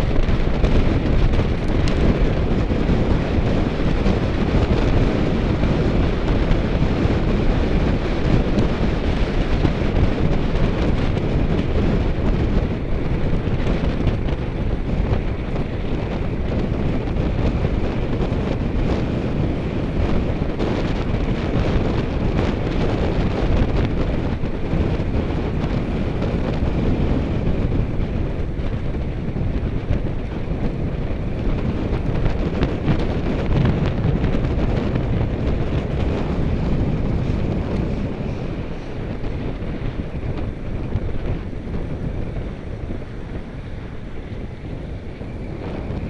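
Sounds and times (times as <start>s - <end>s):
wind rushing over microphone: 0.0s - 46.0s.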